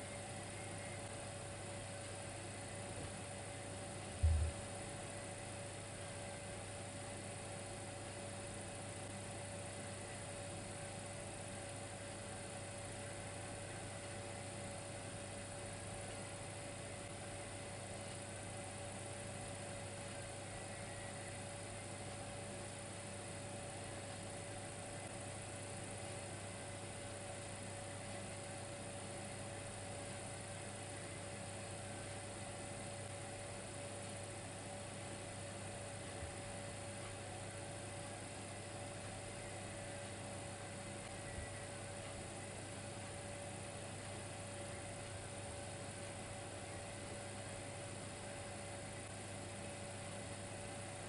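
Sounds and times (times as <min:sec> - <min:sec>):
constant mid-pitched tone: 0:00.0 - 0:03.0, 0:36.8 - 0:46.4
electric fireplace humming: 0:00.0 - 0:51.0
faint constant tone: 0:00.0 - 0:51.0.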